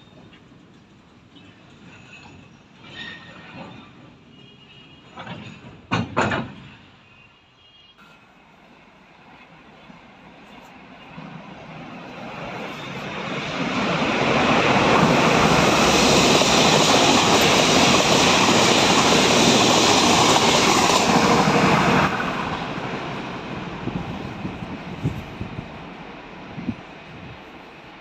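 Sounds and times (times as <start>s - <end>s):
train passing at speed: 8.0s - 28.0s.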